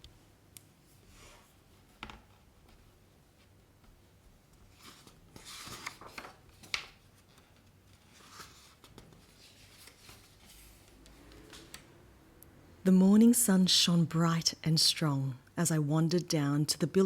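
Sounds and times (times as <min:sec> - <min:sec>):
book pages rustling: 0:02.6 - 0:11.9.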